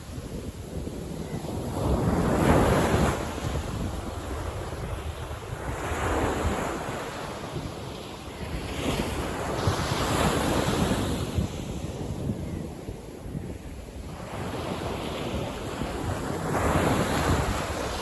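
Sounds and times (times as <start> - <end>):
ocean waves breaking on beach: 0.0 - 18.0
wind buffeting microphone: 0.0 - 18.0.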